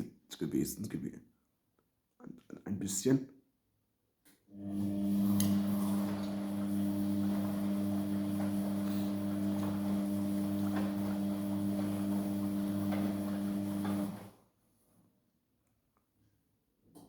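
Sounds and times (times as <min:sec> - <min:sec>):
washing machine motor hum: 0:04.5 - 0:14.4.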